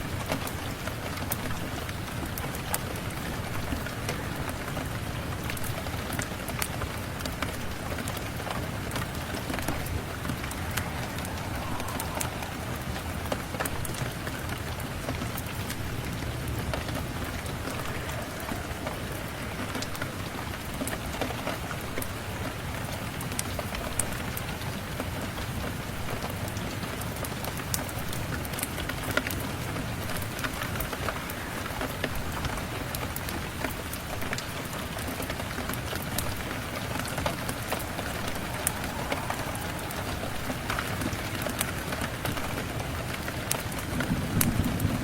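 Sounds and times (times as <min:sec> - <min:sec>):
steady rain: 0:00.0 - 0:45.0
low rumble: 0:08.7 - 0:15.0.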